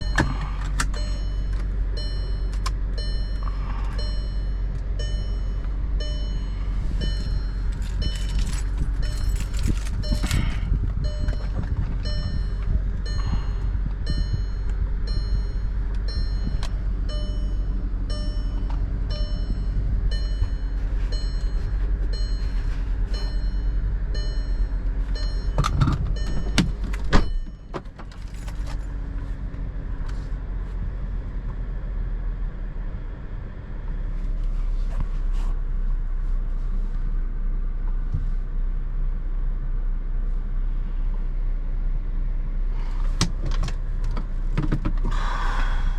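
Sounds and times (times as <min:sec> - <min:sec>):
car warning chime: 0:00.0 - 0:28.8
low hum of car: 0:00.0 - 0:45.9.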